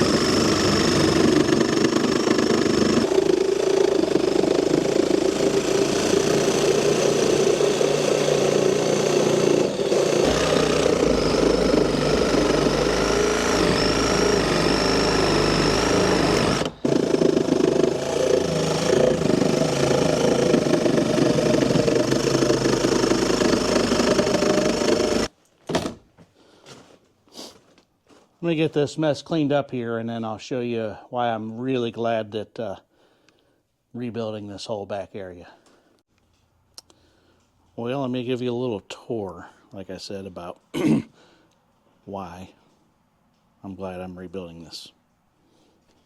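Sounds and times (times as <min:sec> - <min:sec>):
power saw cutting wood: 0:00.0 - 0:26.0.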